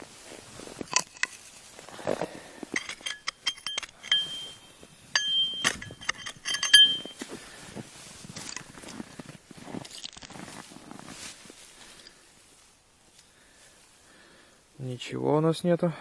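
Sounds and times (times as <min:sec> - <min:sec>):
light metallic clinking: 0:00.8 - 0:10.2.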